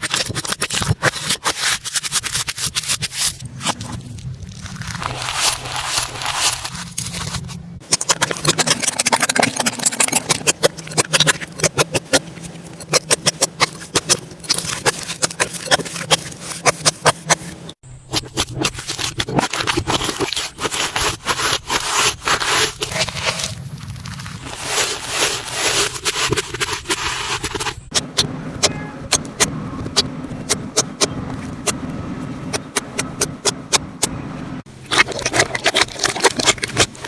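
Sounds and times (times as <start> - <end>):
slime crackling and popping: 2.9 - 12.1, 34.9 - 37.0.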